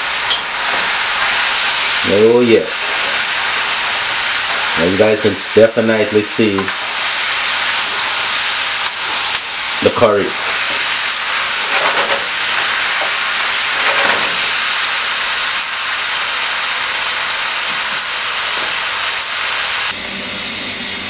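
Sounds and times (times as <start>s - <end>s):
curry sizzling in a skillet: 0.0s - 21.0s
metal tongs stirring: 0.2s - 14.2s.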